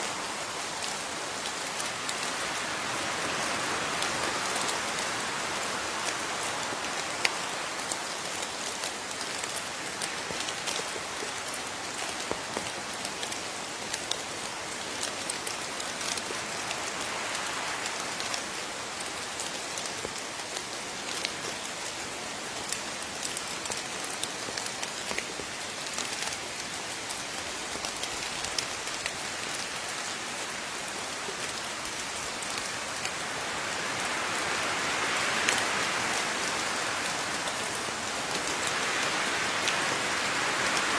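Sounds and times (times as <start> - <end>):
raindrops ticking on a surface: 0.0 - 40.9
steady rain: 0.0 - 40.9.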